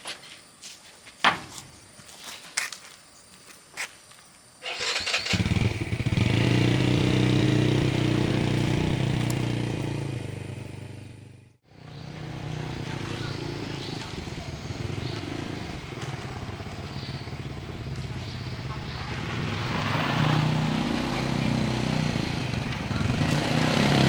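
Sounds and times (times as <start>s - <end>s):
engine running: 4.8s - 24.0s.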